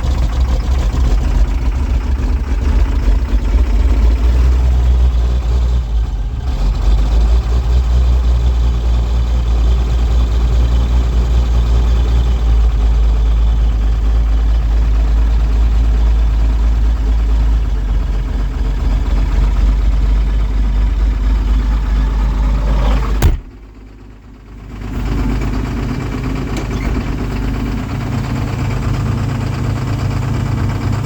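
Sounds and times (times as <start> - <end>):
tractor diesel engine running: 0.0 - 31.0
click: 26.5 - 26.8.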